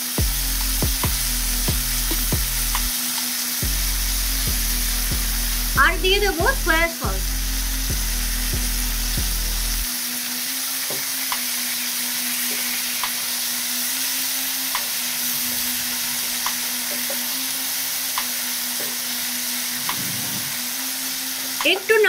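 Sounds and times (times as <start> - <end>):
vegetables sizzling in oil: 0.0 - 22.0
low hum: 0.2 - 3.0, 3.6 - 9.9.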